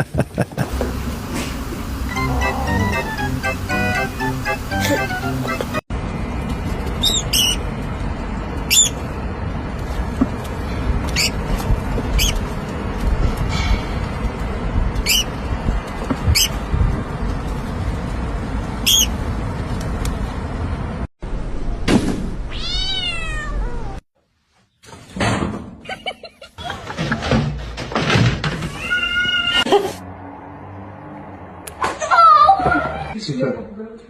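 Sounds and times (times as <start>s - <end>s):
cat meowing: 22.5s - 24.0s, 28.7s - 29.6s
knocking and clatter: 26.6s - 28.8s.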